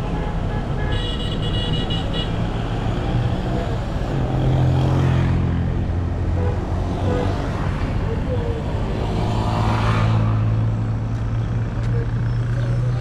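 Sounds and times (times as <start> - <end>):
street traffic engines: 0.0 - 13.0
high-pitched car horn: 0.1 - 2.4
heavy vehicle engine: 2.0 - 13.0.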